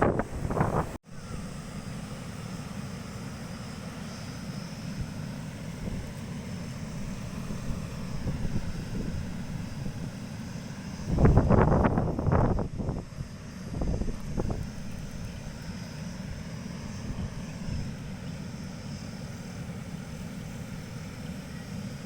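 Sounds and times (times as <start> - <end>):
wind buffeting microphone: 0.0 - 1.5, 6.9 - 10.2, 11.0 - 15.6.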